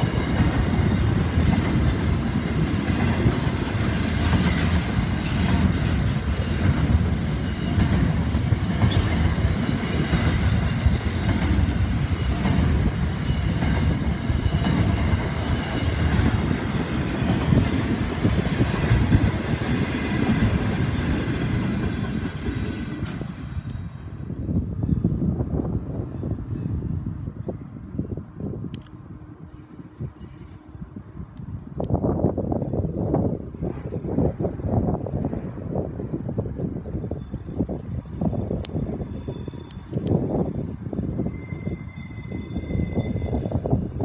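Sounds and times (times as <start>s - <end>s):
train wheels rumbling on rail: 0.0s - 44.0s
wheel squeals: 17.5s - 18.5s, 21.3s - 24.7s, 37.0s - 40.0s, 41.0s - 44.0s.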